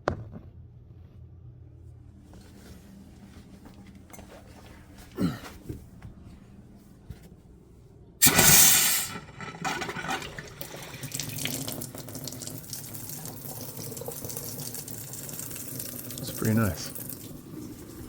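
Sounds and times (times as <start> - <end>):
water running from tap: 8.2 - 18.0.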